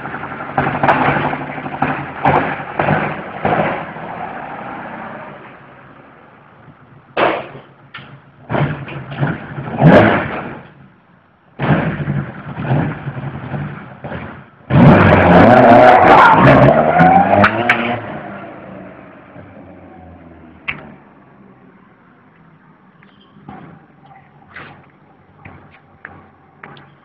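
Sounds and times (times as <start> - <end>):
rally car engine revving: 0.0 - 5.9, 7.0 - 10.8, 11.6 - 21.4.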